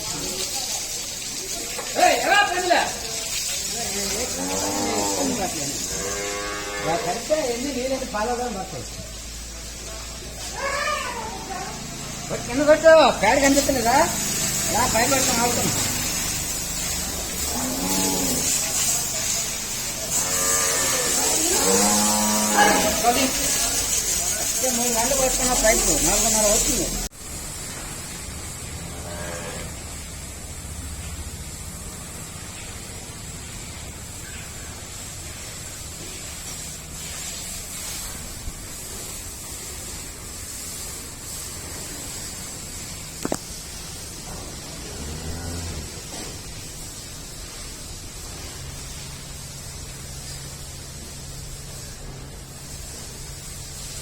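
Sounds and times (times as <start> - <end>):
steady hiss: 0.0 - 54.0
water spraying from hose: 0.0 - 54.0
cow mooing: 4.4 - 7.3, 17.4 - 18.6, 20.1 - 23.2, 28.9 - 29.8, 44.9 - 46.0.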